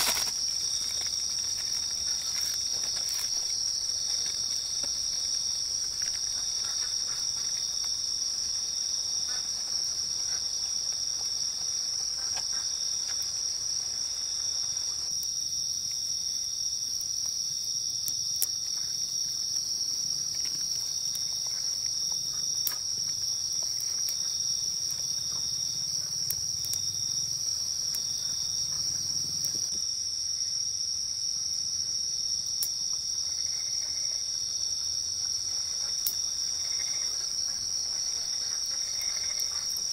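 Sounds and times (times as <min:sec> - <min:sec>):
wood fire crackling: 0:00.0 - 0:29.8
night insects trilling: 0:00.0 - 0:39.9.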